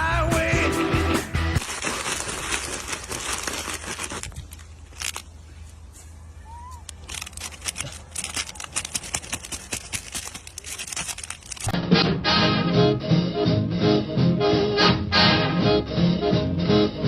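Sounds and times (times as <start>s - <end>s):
music: 0.0s - 1.6s, 11.8s - 17.0s
crackling and crinkling: 1.5s - 11.8s.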